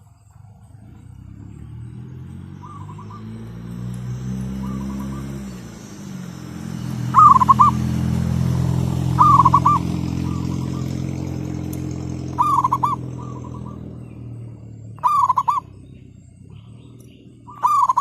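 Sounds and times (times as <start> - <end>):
vehicle engine humming: 0.0 - 18.0
doves cooing: 2.4 - 18.0.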